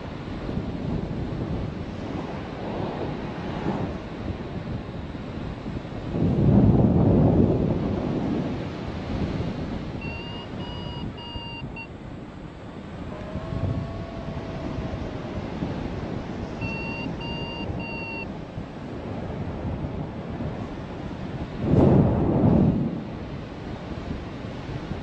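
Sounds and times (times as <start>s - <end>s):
wind buffeting microphone: 0.0s - 25.0s
variometer beeping: 10.0s - 12.0s, 16.6s - 18.3s.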